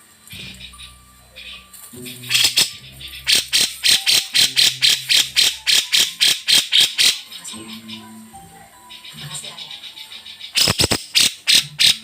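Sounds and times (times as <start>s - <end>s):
bird giving scratchy calls: 2.3s - 7.4s, 9.7s - 12.0s.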